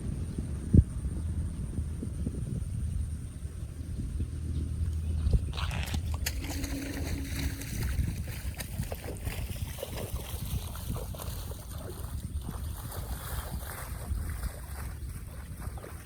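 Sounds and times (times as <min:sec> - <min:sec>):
running churning water: 0:05.2 - 0:16.0.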